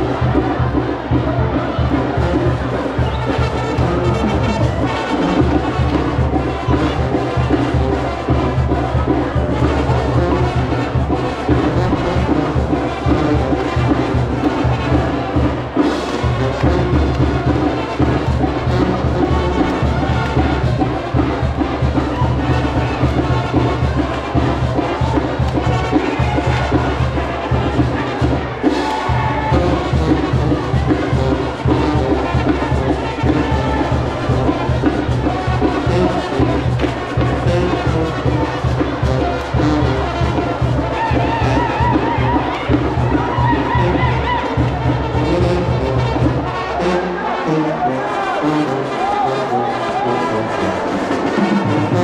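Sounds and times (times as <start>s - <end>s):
steady percussion: 0.0s - 47.5s
crowd noise: 0.0s - 52.0s
live brass band music: 0.0s - 52.0s.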